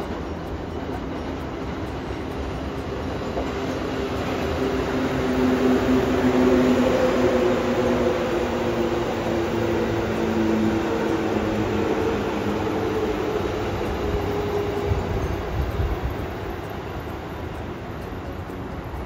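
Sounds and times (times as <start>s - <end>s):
train electric whine: 0.0s - 19.0s
train running rumble: 0.0s - 19.0s.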